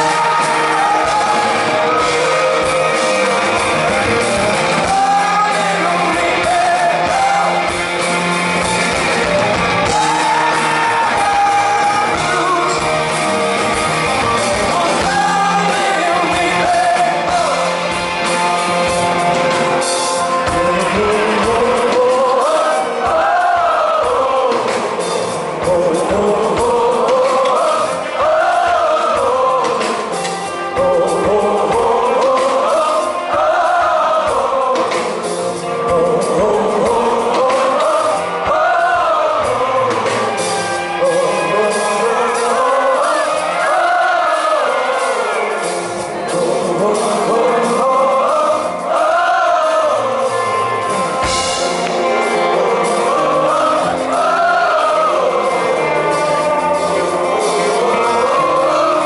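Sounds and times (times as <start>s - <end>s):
live rock band playing: 0.0s - 59.0s
voices singing a repeated phrase: 20.7s - 25.0s, 25.6s - 30.2s, 30.8s - 35.3s, 36.0s - 50.9s, 52.1s - 59.0s.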